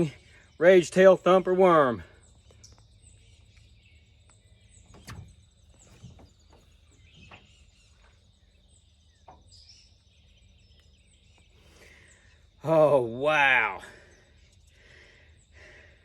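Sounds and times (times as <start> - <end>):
faint bird chirps: 0.0 - 16.0
soft knocks: 4.9 - 7.5.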